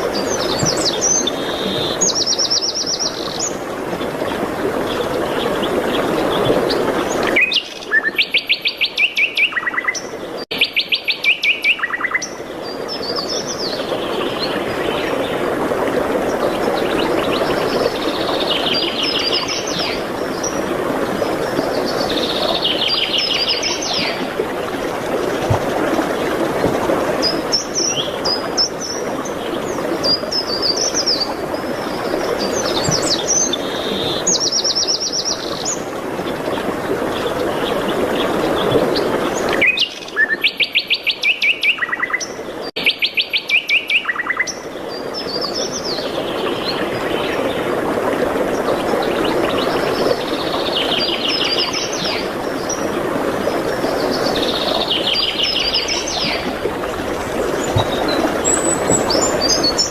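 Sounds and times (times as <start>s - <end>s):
songbirds singing and chirping: 0.0s - 15.4s, 26.6s - 47.8s, 48.6s - 59.9s.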